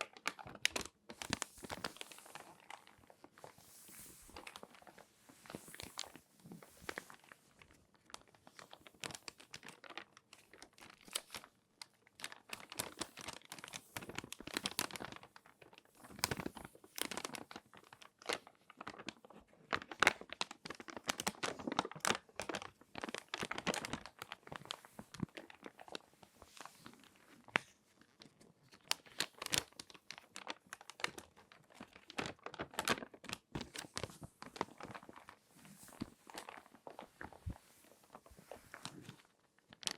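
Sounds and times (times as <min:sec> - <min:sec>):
magazine pages crinkling: 0:00.1 - 0:39.9.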